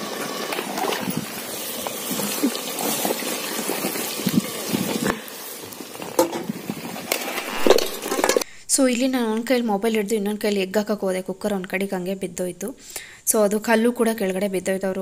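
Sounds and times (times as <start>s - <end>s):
food sizzling in pot: 0.0s - 8.5s.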